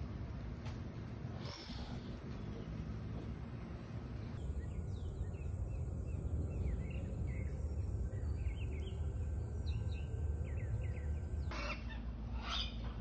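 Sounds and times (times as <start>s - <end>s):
steady low rumbling: 0.0s - 13.0s
small birds chirping: 1.4s - 13.0s.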